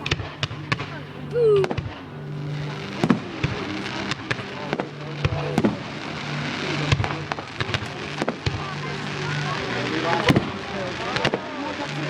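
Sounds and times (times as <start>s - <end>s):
fireworks crackling hiss: 0.0s - 12.0s
fireworks bangs: 2.6s - 12.0s.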